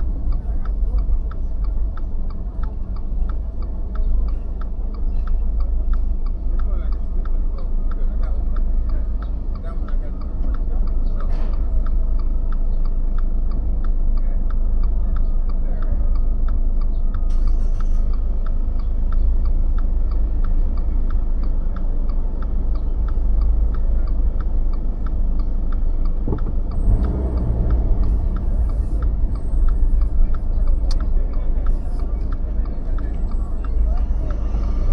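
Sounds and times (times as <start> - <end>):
engine and tyre rumble: 0.0 - 34.9
car indicator clicking: 24.4 - 33.8.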